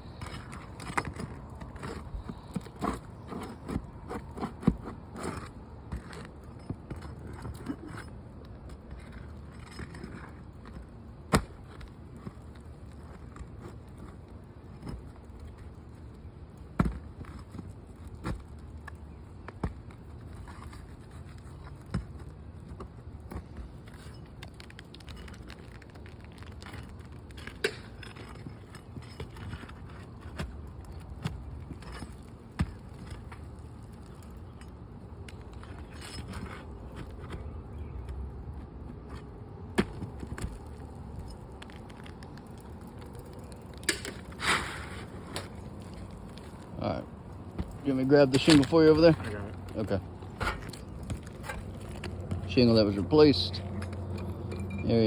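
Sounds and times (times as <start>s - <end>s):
low steady rumble: 26.6s - 55.0s.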